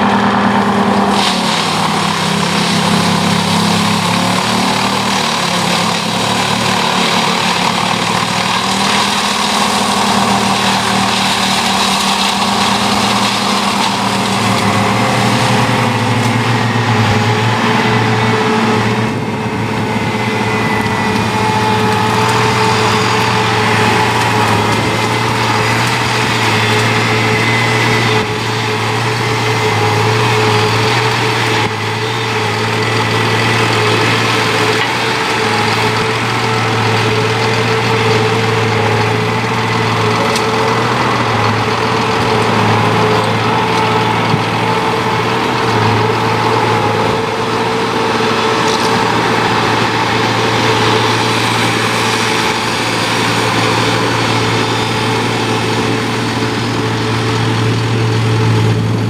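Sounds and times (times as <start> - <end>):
wood chipper engine humming: 0.0 - 59.0.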